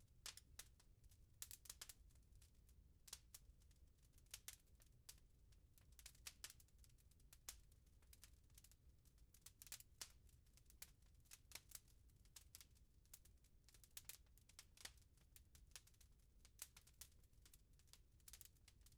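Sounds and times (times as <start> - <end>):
fireplace crackling: 18.2 - 18.4.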